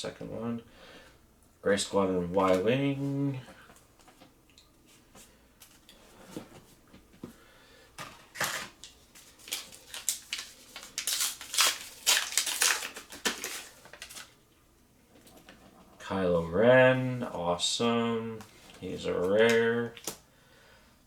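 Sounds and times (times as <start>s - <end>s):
foil pack tearing and crinkling: 8.2s - 14.3s.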